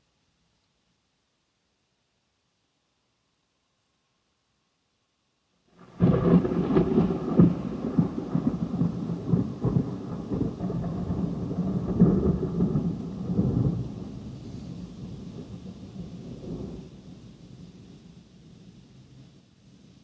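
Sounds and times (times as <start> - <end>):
thunder rumbling: 5.8 - 18.7.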